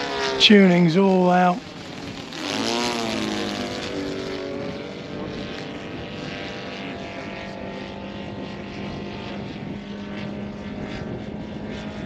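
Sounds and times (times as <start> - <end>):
model plane engine passing: 0.0 - 12.0.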